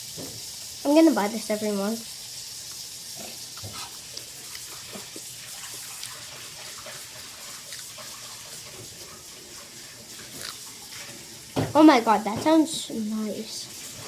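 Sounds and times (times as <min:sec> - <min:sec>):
steady hiss: 0:00.0 - 0:14.0
chewing close to microphone: 0:02.6 - 0:08.4, 0:10.2 - 0:10.7.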